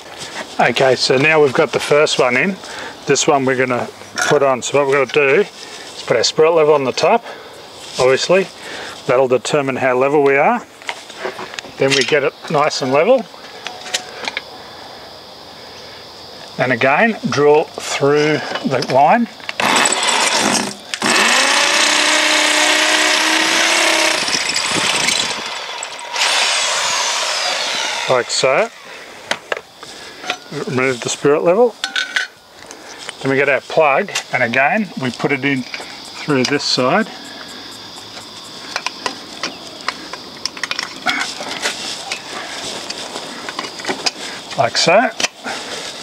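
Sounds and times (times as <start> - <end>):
insects chirring: 0.0 - 46.0
electric drill boring into brick: 19.6 - 28.9.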